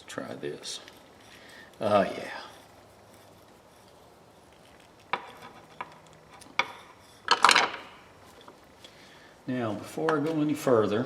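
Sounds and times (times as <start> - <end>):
metal tools clinking on workbench: 5.1 - 8.6.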